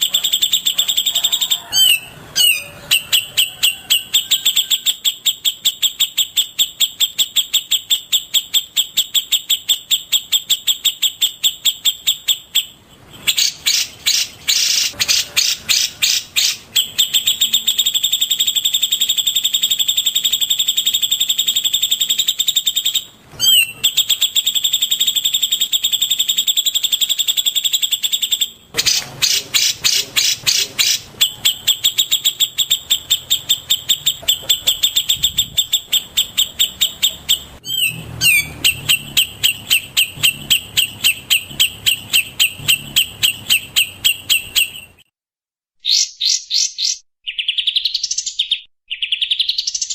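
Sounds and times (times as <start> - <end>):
songbird chirping: 0.0 - 45.1, 45.8 - 49.9.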